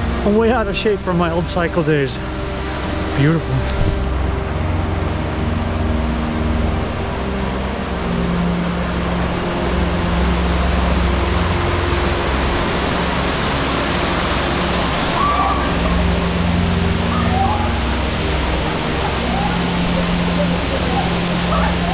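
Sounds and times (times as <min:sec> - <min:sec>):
waterfall rushing: 0:10.5 - 0:21.9.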